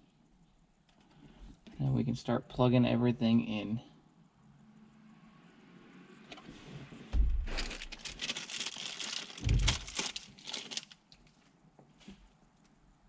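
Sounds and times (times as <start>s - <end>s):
dull thumps: 7.1s - 8.0s, 9.4s - 9.8s
wiring crinkling and rustling: 7.1s - 12.8s.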